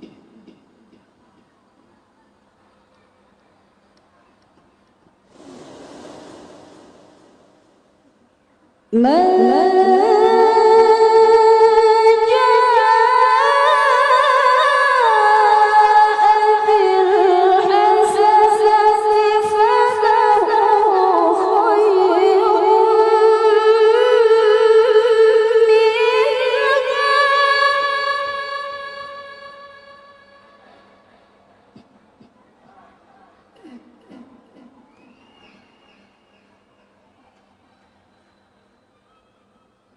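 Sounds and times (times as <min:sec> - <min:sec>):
woman reciting in melismatic chant: 0:08.9 - 0:34.4.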